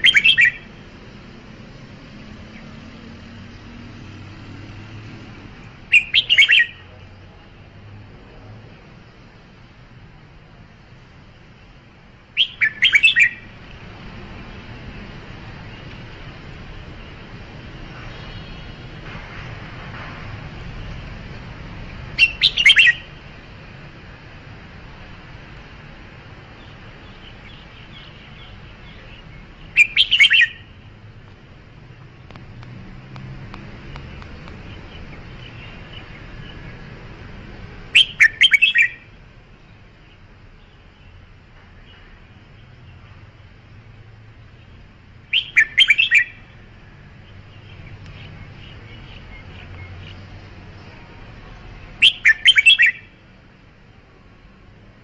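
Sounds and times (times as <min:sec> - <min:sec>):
bird chirping and warbling: 0:00.0 - 0:00.9, 0:05.9 - 0:06.9, 0:12.4 - 0:13.6, 0:22.1 - 0:23.2, 0:26.6 - 0:30.9, 0:37.9 - 0:39.1, 0:45.3 - 0:46.6, 0:51.8 - 0:53.2
steady background hiss: 0:00.0 - 0:55.0.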